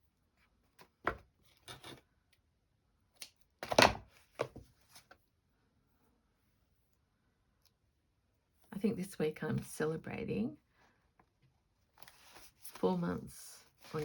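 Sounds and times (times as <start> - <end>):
paper rustling: 11.9 - 14.0.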